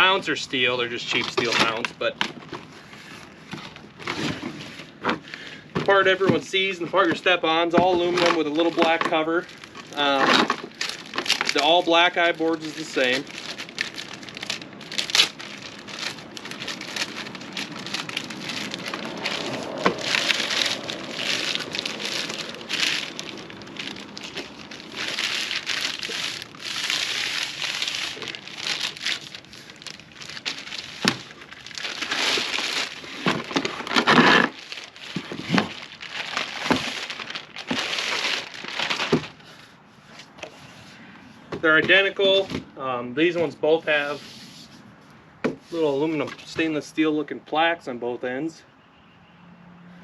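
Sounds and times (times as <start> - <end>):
packaging rustling and crinkling: 0.0 - 39.7.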